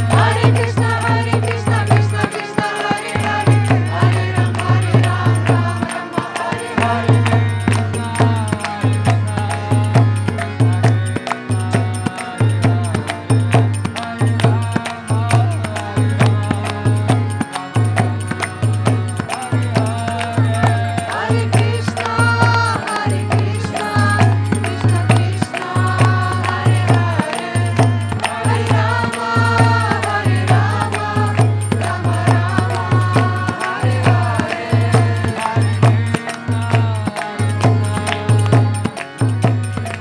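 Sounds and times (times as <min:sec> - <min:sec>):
voices chanting: 0:00.0 - 0:08.8, 0:19.4 - 0:38.8.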